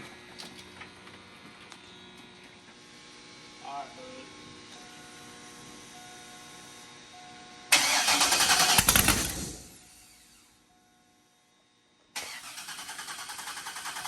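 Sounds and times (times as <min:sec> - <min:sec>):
loud engine starting and running: 0:07.7 - 0:10.5, 0:12.2 - 0:14.0.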